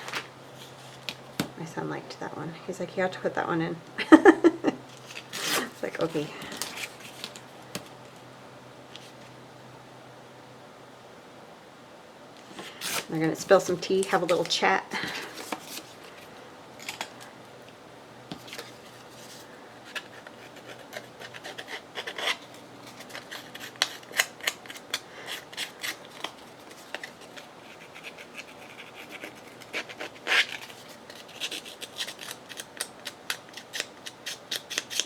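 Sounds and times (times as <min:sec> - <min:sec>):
scissors cutting paper: 0:05.0 - 0:07.4, 0:19.9 - 0:35.0.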